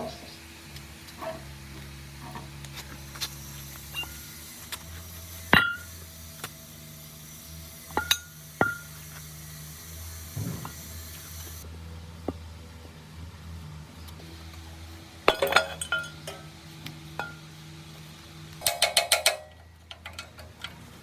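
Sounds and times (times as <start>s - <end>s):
steady low hum: 0.0s - 21.0s
metal parts clinking: 15.3s - 16.4s, 18.6s - 20.8s.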